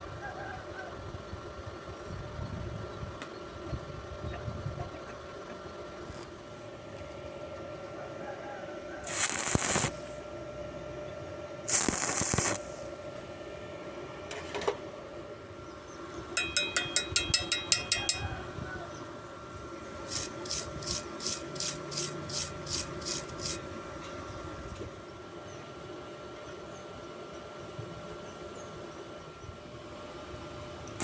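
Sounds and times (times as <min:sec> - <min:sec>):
scraping strokes on metal: 0:09.0 - 0:10.2, 0:11.7 - 0:12.9, 0:20.1 - 0:23.6
ringing metal taps: 0:16.4 - 0:18.4.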